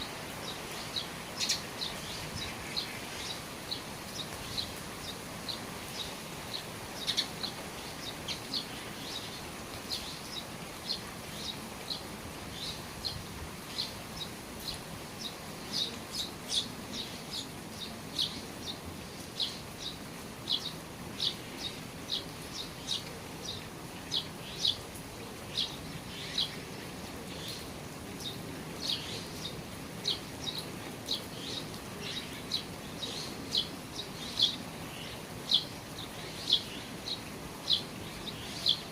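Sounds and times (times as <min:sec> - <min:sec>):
rain falling on eaves: 0:00.0 - 0:38.9
bird chirping: 0:00.4 - 0:18.8, 0:28.2 - 0:38.9.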